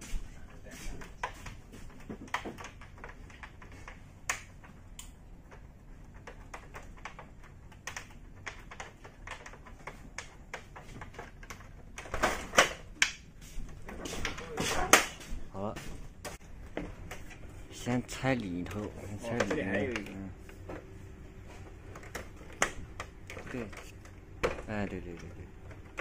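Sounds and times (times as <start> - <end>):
clicks and taps on plastic: 1.1 - 12.1.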